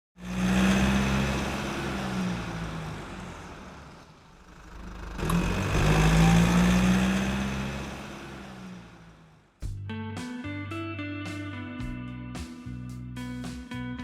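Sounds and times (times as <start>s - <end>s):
vehicle engine running: 0.2s - 9.8s.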